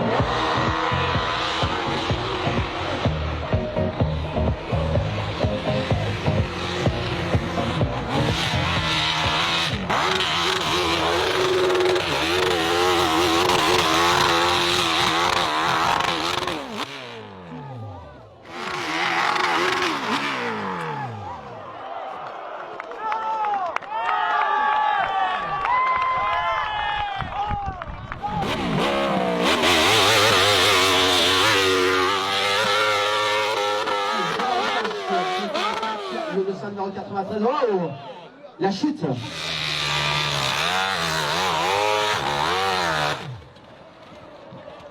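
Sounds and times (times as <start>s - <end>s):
motorcycle engine revving: 0.0s - 21.7s, 28.2s - 36.9s, 39.0s - 44.1s.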